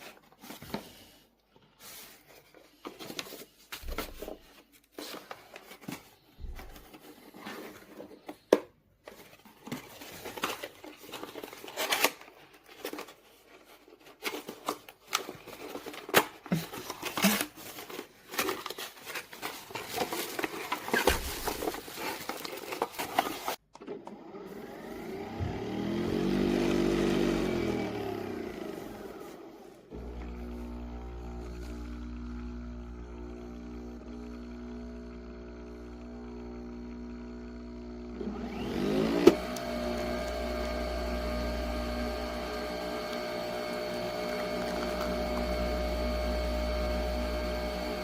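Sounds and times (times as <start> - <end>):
coffee machine motor whir: 23.4 - 48.0.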